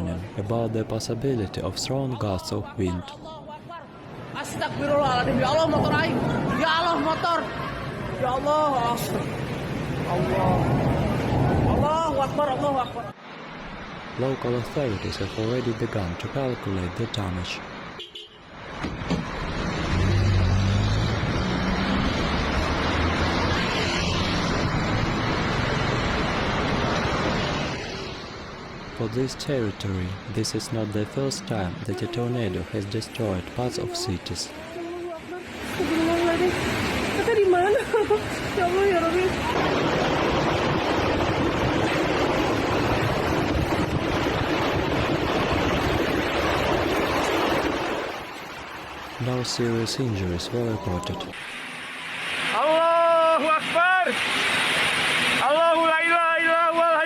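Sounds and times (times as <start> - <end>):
storm wind buffeting microphone: 4.2 - 13.0, 33.4 - 49.2.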